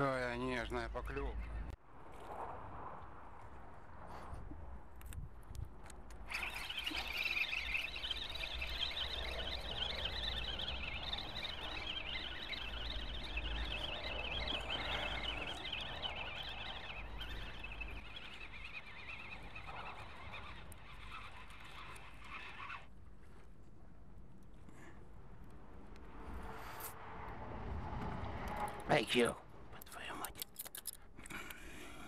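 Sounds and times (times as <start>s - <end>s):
flock of birds chattering: 6.3s - 21.2s.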